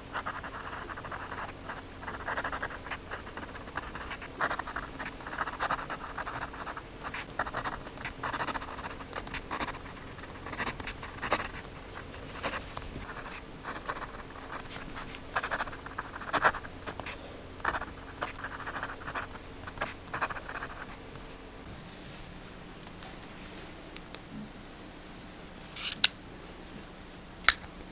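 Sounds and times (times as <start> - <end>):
paper scratching and rubbing: 2.2 - 20.9.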